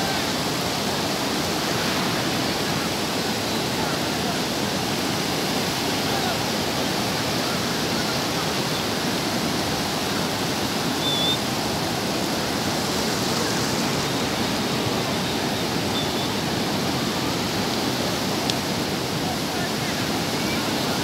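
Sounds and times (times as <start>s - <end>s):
waves breaking on a beach: 0.0s - 21.0s
faint high chirp: 10.9s - 11.5s, 15.9s - 16.4s.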